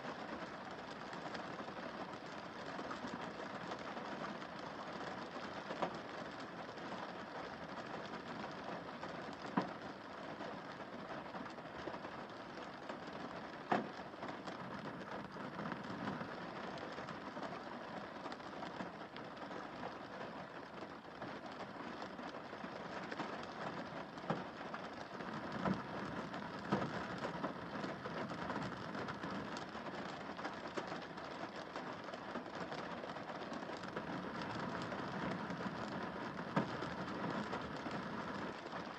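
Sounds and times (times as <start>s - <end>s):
rain on car windscreen: 0.0s - 38.9s.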